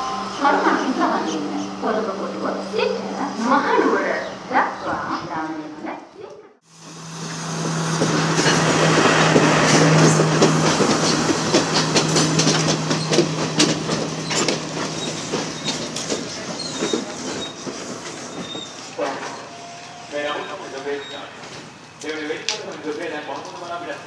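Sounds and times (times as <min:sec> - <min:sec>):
diesel train drone: 0:00.0 - 0:24.0
train wheels clattering: 0:06.8 - 0:24.0.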